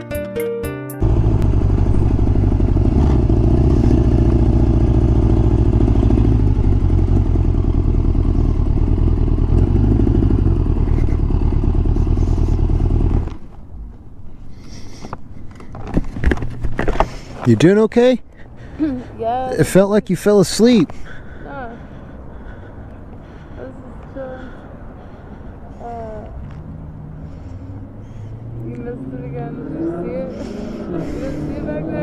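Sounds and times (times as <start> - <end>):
motorcycle engine idling: 1.0 - 13.3.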